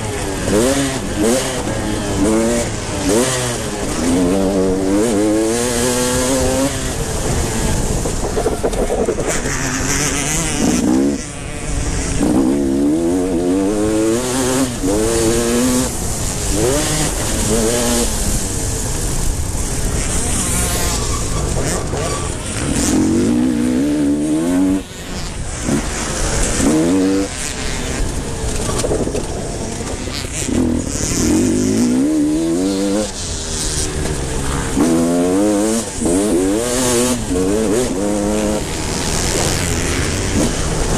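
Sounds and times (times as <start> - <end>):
motorcycle engines revving: 0.0 - 40.9.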